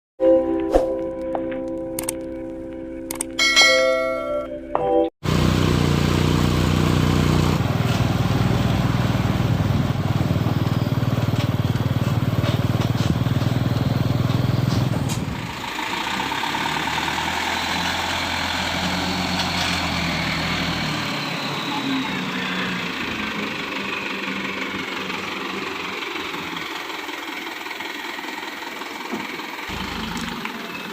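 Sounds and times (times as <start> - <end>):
diesel truck engine running: 5.2 - 30.9.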